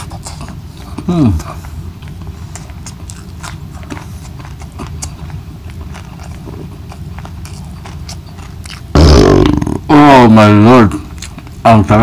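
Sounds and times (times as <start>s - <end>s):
cucumber crunching: 0.0s - 12.0s
mouth clicks: 8.1s - 9.9s.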